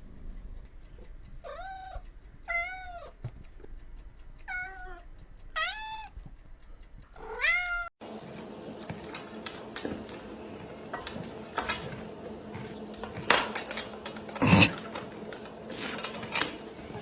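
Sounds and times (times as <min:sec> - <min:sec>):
low hum: 0:00.0 - 0:17.0
cat meowing: 0:01.4 - 0:03.2, 0:04.5 - 0:06.2, 0:07.2 - 0:07.9
clicks and knocks: 0:08.7 - 0:17.0.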